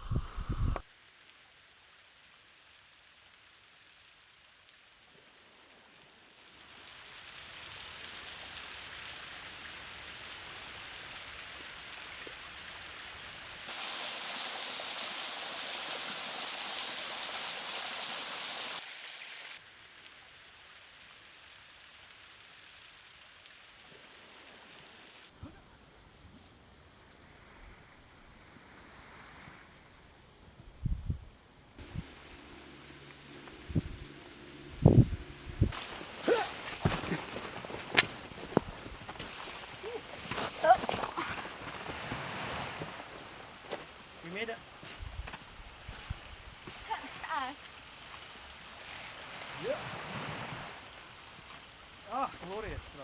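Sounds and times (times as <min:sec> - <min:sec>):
waterfall rushing: 0:13.7 - 0:19.6.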